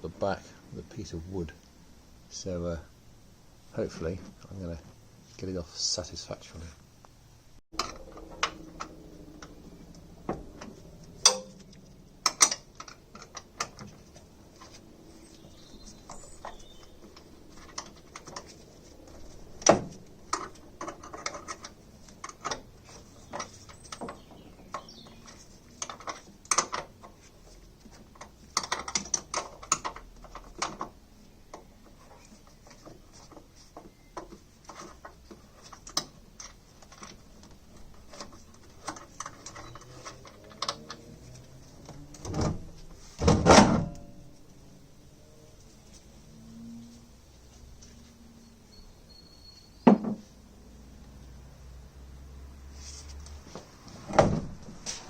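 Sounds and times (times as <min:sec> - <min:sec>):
tools clinking on metal: 0:11.2 - 0:13.4.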